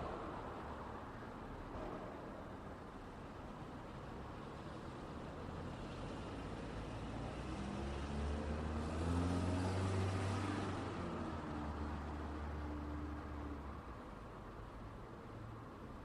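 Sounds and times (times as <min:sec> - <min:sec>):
vehicle passing close by: 0:07.3 - 0:13.1.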